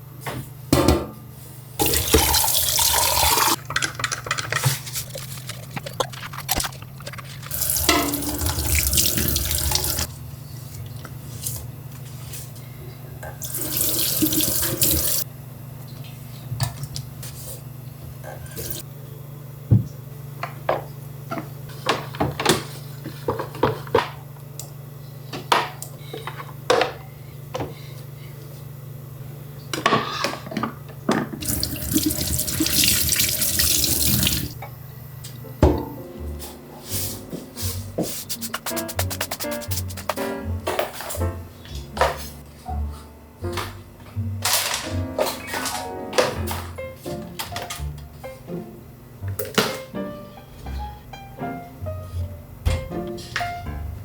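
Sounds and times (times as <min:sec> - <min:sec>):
tap water running into sink: 0:01.8 - 0:10.1, 0:13.4 - 0:15.2, 0:31.4 - 0:34.6.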